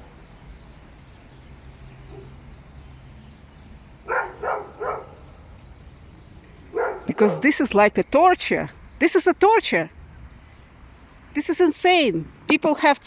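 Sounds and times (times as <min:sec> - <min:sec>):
dog barking: 0:04.1 - 0:05.2, 0:06.7 - 0:07.5.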